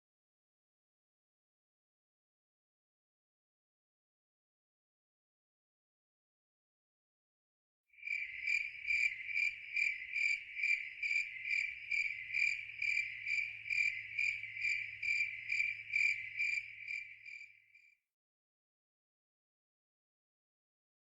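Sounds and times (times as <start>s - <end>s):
cricket chirping: 8.0s - 17.9s.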